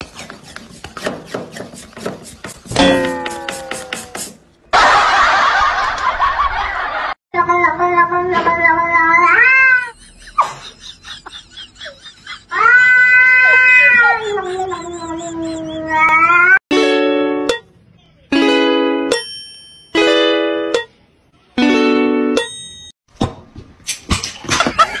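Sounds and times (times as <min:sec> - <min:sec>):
kitten yowling: 0:12.5 - 0:16.6.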